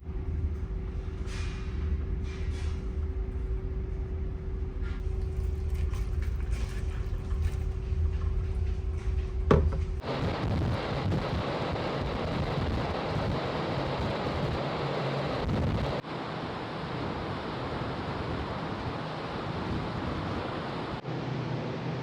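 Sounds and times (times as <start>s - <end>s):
low hum of ferry: 0.0s - 22.0s
wind and sea noise: 0.0s - 22.0s.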